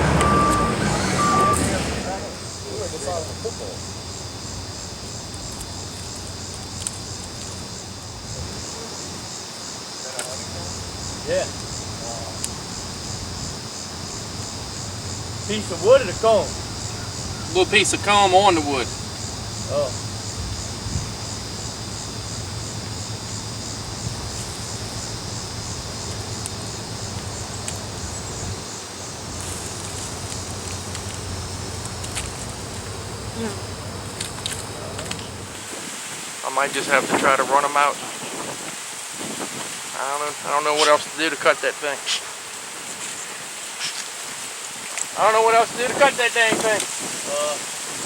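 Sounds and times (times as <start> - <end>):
honey bees buzzing: 0.0 - 36.5
crickets chirping: 0.0 - 48.0
high insect trill: 0.0 - 48.0.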